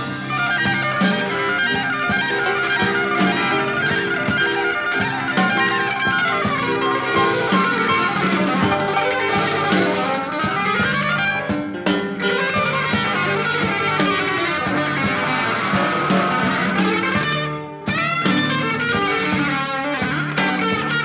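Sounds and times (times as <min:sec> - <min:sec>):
bass: 0:00.0 - 0:21.0
guitar: 0:00.0 - 0:21.0
lead instrument line: 0:00.0 - 0:21.0
steady drum beat: 0:00.0 - 0:21.0.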